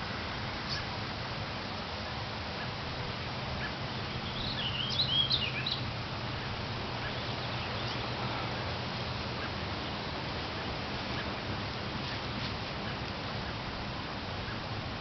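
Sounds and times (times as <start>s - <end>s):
songbird chirping: 3.6s - 8.4s.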